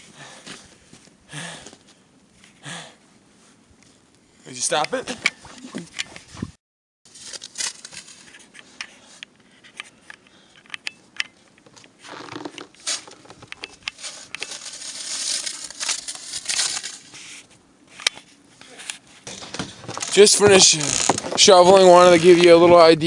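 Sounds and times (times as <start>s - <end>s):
crunching and scraping in snow: 14.0s - 17.5s.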